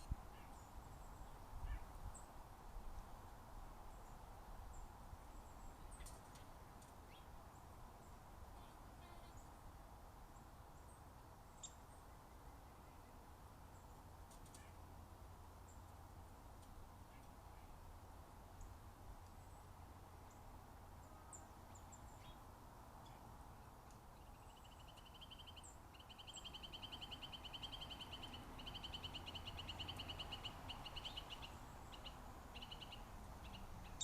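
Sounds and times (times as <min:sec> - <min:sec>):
bird chirps: 0:24.2 - 0:34.0.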